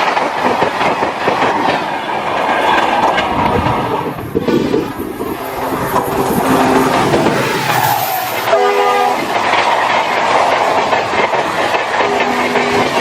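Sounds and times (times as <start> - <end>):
train rumble and wheel clatter: 0.0 - 13.0
train horn blast: 5.3 - 9.4, 12.0 - 13.0.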